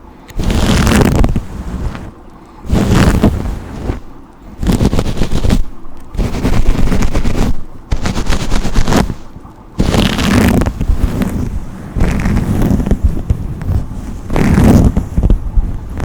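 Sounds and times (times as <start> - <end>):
brush bristles rasping: 2.7 - 15.2.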